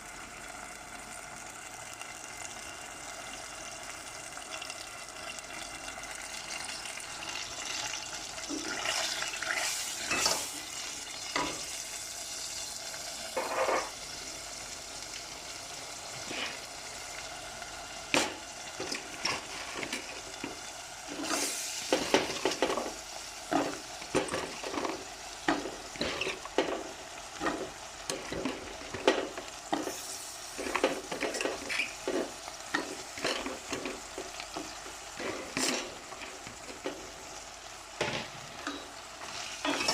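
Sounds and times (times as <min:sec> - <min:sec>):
vegetables sizzling in oil: 0:00.0 - 0:39.9
utensil scraping a pan: 0:23.5 - 0:26.8.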